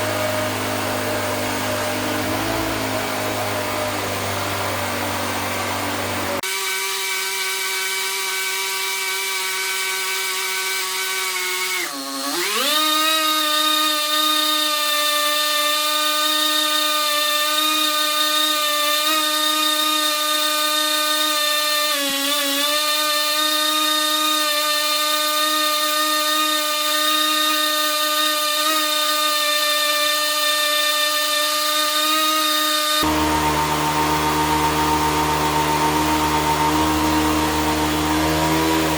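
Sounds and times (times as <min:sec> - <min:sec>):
small power tool motor running: 0:00.0 - 0:38.9.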